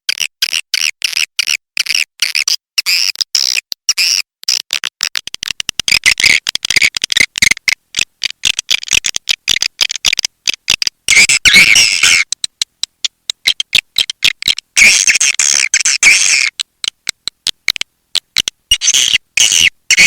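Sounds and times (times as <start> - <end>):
swiftlets twittering and clicking: 5.1 - 20.0.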